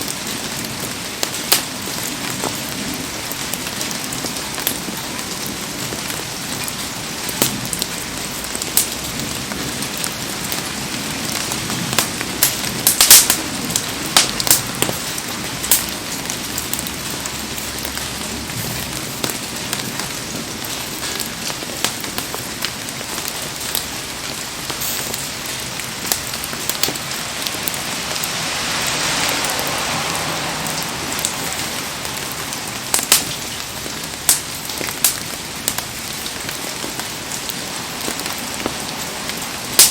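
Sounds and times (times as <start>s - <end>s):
heavy rain falling: 0.0s - 39.9s
sharp cracks: 1.2s - 2.8s, 7.3s - 8.0s, 11.4s - 27.9s, 32.9s - 37.1s.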